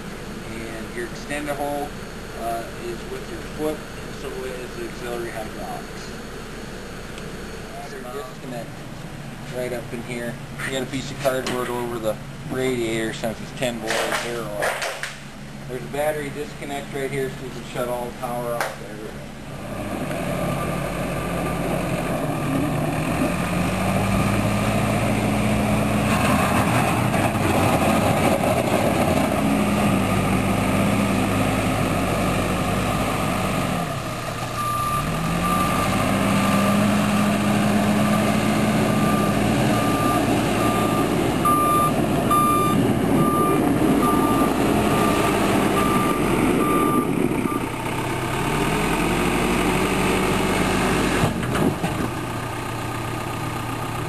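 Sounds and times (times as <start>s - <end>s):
diesel engine revving: 0.0s - 54.0s
reversing alarm beeping: 34.6s - 36.0s, 38.9s - 47.7s.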